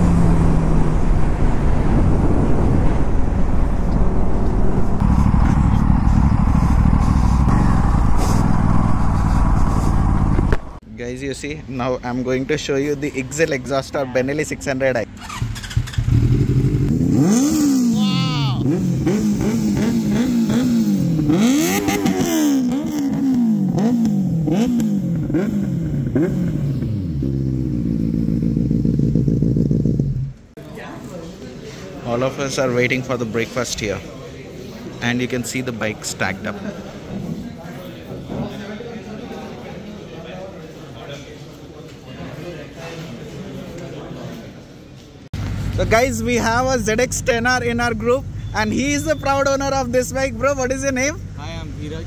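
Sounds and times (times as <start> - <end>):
wind buffeting microphone: 0.0 - 10.8
motorcycle engines running: 4.4 - 10.8, 18.6 - 30.4.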